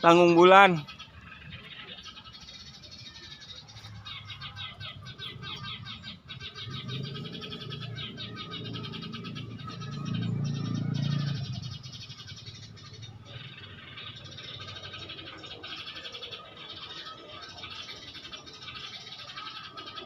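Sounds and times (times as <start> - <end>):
small birds chattering trills: 0.0 - 20.0
low droning: 6.5 - 13.5.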